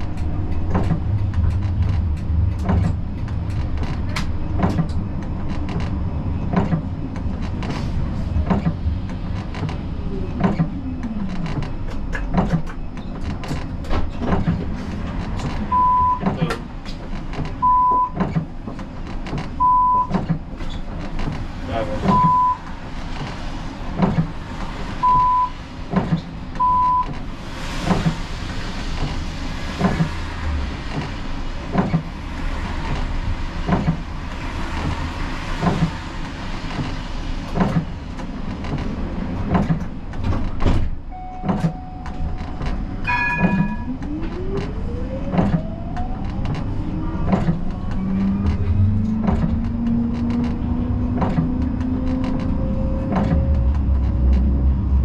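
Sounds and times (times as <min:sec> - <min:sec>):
tram running rumble: 0:00.0 - 0:55.0
short beeps: 0:41.1 - 0:42.3
short chime: 0:43.0 - 0:43.9.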